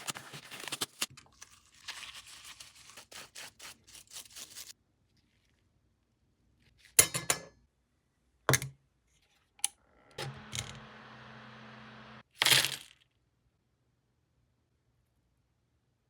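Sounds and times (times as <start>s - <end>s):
low steady hum: 9.8s - 12.2s.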